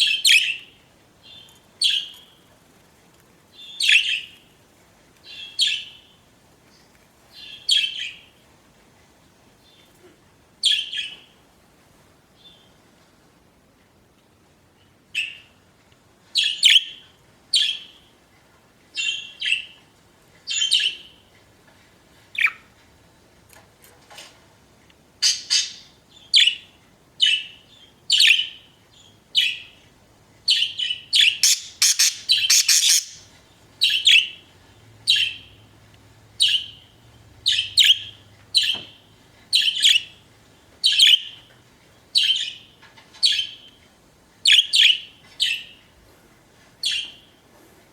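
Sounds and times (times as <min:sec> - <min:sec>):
budgerigars chirping: 0:25.2 - 0:26.6, 0:30.5 - 0:34.4, 0:35.1 - 0:35.6, 0:36.4 - 0:38.8, 0:40.8 - 0:41.4, 0:42.2 - 0:42.7.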